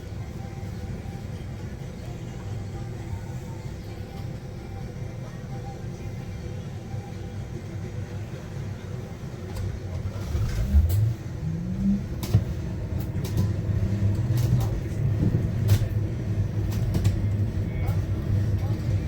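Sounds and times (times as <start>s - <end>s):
bus low rumble: 0.0s - 19.0s
bus body knocks and rattles: 14.4s - 17.4s.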